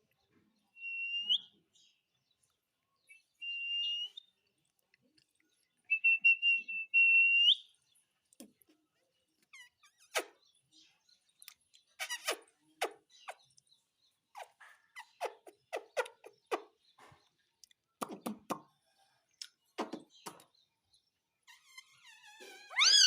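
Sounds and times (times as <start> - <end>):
parrot chirping and chattering: 9.4 - 10.6, 11.3 - 18.7, 21.4 - 23.0.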